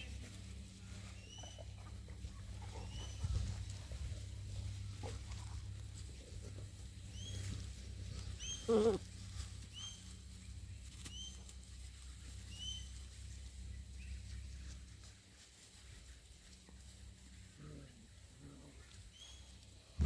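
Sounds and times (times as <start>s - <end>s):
steady low hum: 0.0s - 20.0s
puppies squeaking: 8.3s - 9.0s
puppy yelp: 8.4s - 9.0s.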